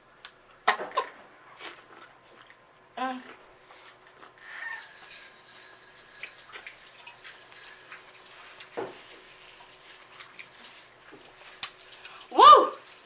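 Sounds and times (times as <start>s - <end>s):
wet chewing and lip smacks: 10.0s - 12.2s.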